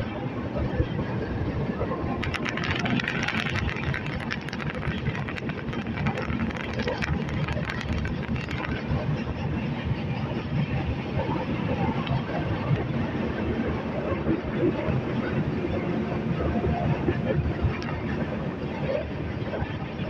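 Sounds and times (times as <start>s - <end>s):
train wheels rumbling: 0.2s - 20.0s
rapid clicking and rattling: 2.1s - 10.9s.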